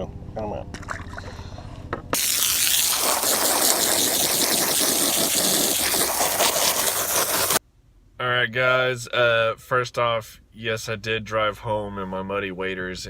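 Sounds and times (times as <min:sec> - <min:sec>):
flowing water rushing: 0:02.2 - 0:07.6.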